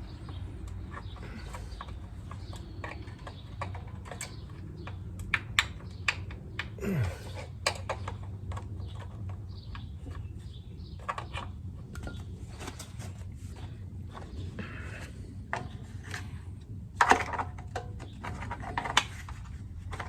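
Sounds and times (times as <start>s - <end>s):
small metal parts clicking and tapping: 0.6s - 10.3s.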